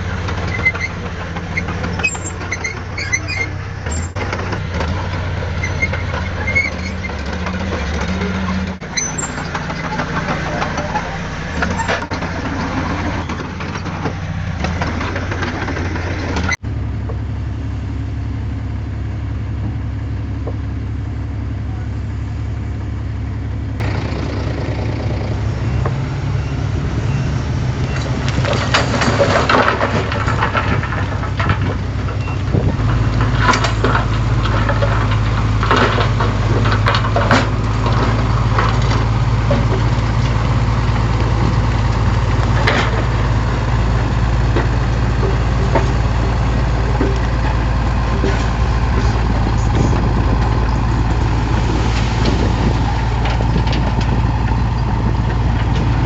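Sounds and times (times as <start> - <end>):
heavy diesel machinery running: 0.0 - 56.0
crunching of soil and debris: 23.8 - 56.0.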